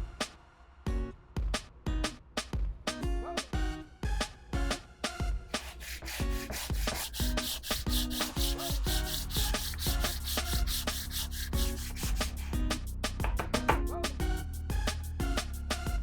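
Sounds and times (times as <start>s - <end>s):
background music: 0.0s - 16.0s
drill bit rasping on abrasive: 5.6s - 12.6s.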